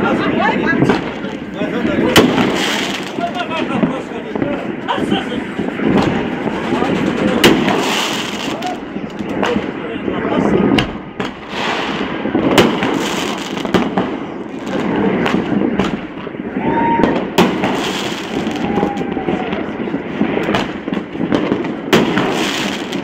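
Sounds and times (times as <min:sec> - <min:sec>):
fireworks bangs and crackles: 0:00.0 - 0:23.0
firework whistle: 0:16.4 - 0:19.9.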